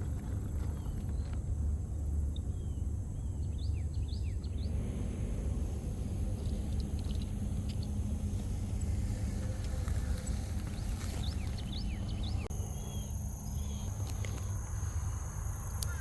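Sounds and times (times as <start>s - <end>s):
steady low rumble: 0.0s - 16.0s
small bird chirping: 5.8s - 16.0s.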